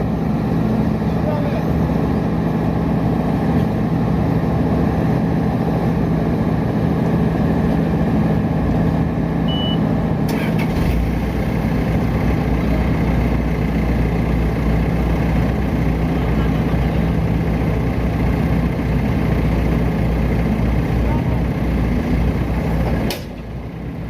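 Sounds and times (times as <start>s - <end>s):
diesel engine droning: 0.0s - 24.0s
high beep: 9.5s - 9.9s.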